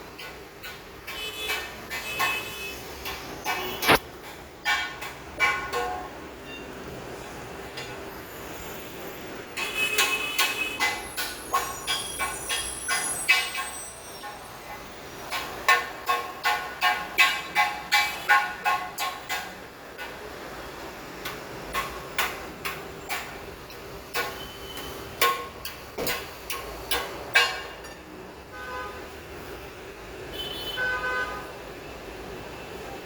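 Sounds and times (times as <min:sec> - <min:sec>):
hammer on sheet metal: 0:00.2 - 0:06.2, 0:09.6 - 0:14.4, 0:15.3 - 0:20.2, 0:21.2 - 0:23.4, 0:24.1 - 0:28.1.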